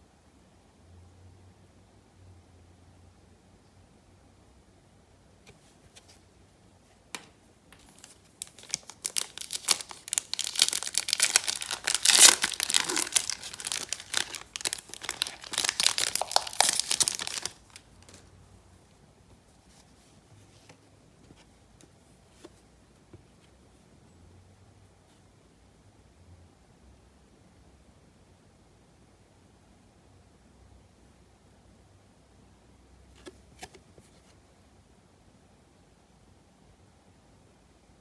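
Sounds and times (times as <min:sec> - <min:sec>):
foil wrapper tearing and crinkling: 0:07.8 - 0:18.2.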